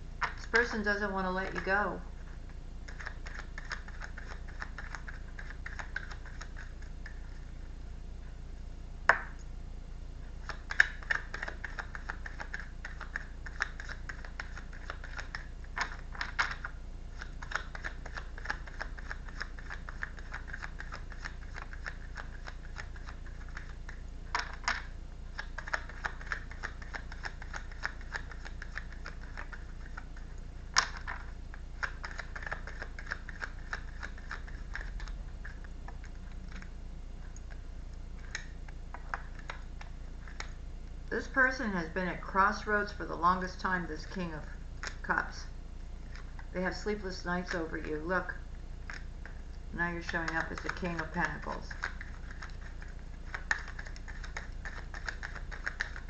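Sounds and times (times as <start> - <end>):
cards being shuffled: 2.8 - 7.4, 10.4 - 37.6, 38.2 - 40.6, 48.8 - 56.0.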